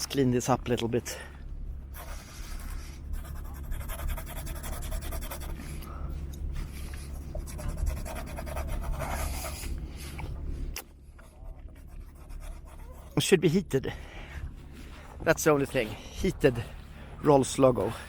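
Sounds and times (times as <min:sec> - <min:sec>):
steady low rumble: 0:00.0 - 0:18.0
scratchy rubbing and scraping: 0:01.9 - 0:05.8, 0:06.5 - 0:13.3.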